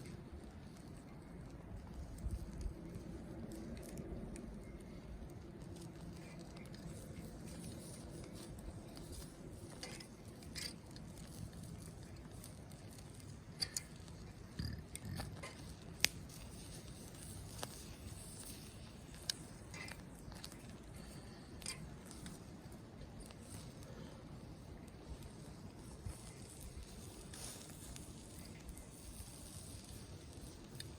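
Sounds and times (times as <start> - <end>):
campfire crackling: 0.0 - 30.9
sharp pops of fire: 7.6 - 23.9.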